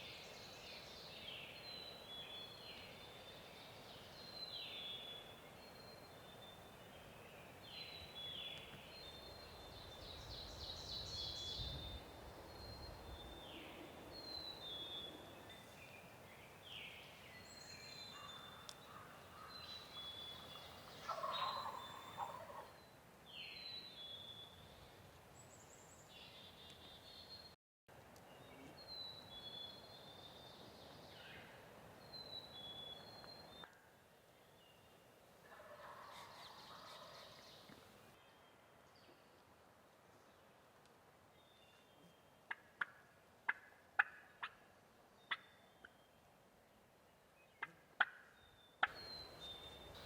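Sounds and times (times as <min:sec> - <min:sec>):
songbirds calling: 0:00.0 - 0:27.6, 0:41.2 - 0:50.0
distant turkey gobbling: 0:20.9 - 0:22.7, 0:35.5 - 0:37.4, 0:42.5 - 0:44.6
sharp turkey clucks: 0:21.0 - 0:22.7, 0:35.5 - 0:37.4, 0:42.5 - 0:44.6, 0:47.6 - 0:48.2.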